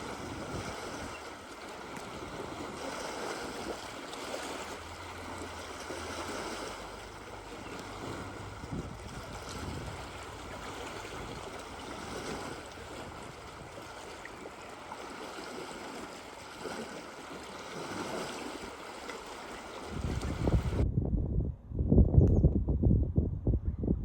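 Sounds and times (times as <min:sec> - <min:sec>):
moving water: 0:00.0 - 0:20.8
low rumble: 0:20.0 - 0:24.0.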